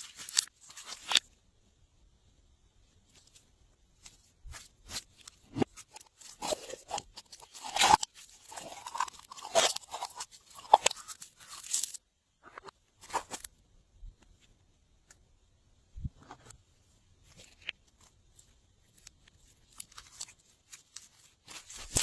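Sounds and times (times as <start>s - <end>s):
slime popping and crackling: 5.5s - 12.0s, 19.7s - 22.0s.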